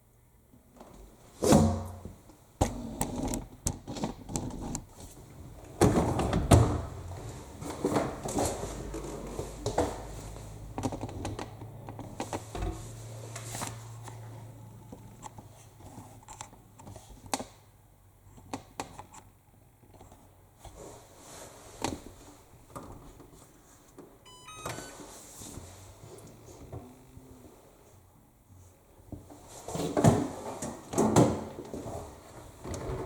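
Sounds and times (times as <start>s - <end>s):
washing machine electronic beeps: 24.2s - 25.2s.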